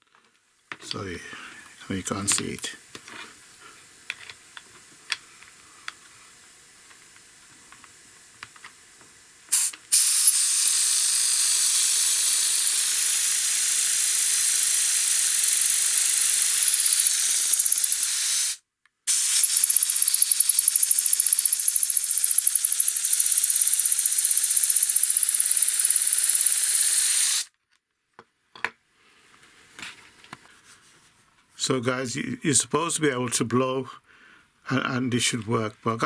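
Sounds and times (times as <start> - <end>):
compressed air hissing: 9.5 - 27.5.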